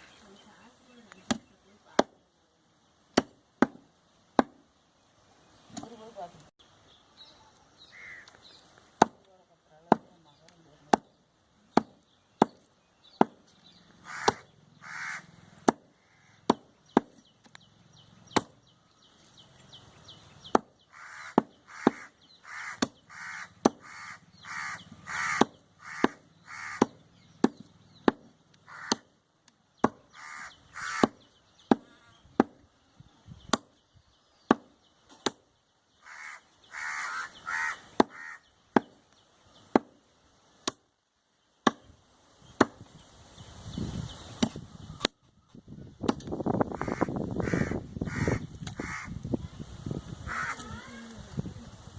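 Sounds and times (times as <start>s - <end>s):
cleaver chopping meat and bone: 3.1s - 3.8s, 9.0s - 9.2s, 9.9s - 10.1s, 10.9s - 13.5s, 15.6s - 17.3s, 25.3s - 26.2s, 26.8s - 29.1s, 31.0s - 32.6s, 33.5s - 33.8s, 34.4s - 35.4s, 38.0s - 39.0s, 39.7s - 40.0s, 41.6s - 41.9s, 46.0s - 46.4s.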